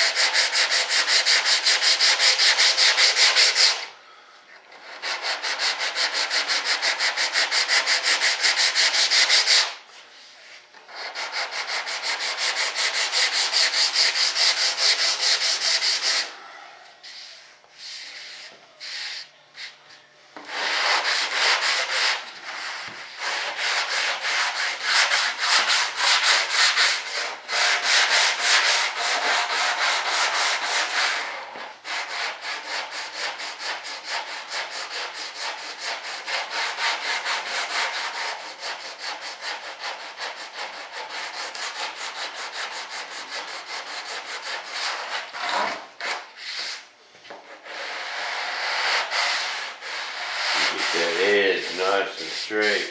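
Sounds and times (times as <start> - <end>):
sandpaper rubbing strokes: 0.0 - 3.9, 4.8 - 16.3, 17.0 - 19.8, 20.5 - 46.9, 47.5 - 52.9.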